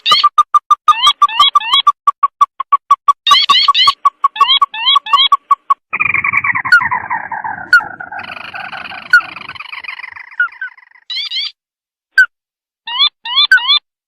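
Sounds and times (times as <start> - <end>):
falling chattering bird trill: 3.2 - 11.6
rising bird chirps: 3.2 - 11.6.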